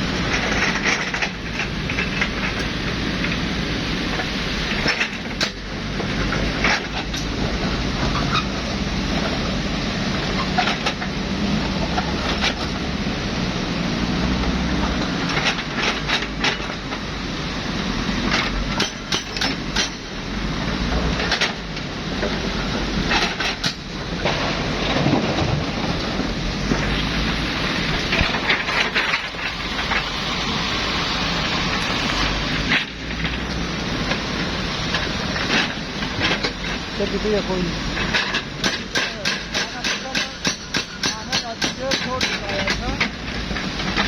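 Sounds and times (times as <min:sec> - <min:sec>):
heavy machine engine running: 0:00.0 - 0:39.3, 0:40.6 - 0:44.0
sharp metal clanks and knocks: 0:00.2 - 0:03.4, 0:18.2 - 0:20.2, 0:23.0 - 0:27.0, 0:38.0 - 0:44.0.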